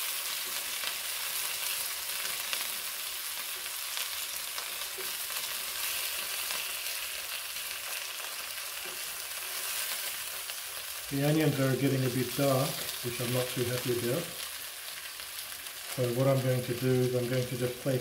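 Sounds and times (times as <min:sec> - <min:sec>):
chicken and onions sizzling in oil: 0:00.0 - 0:18.0.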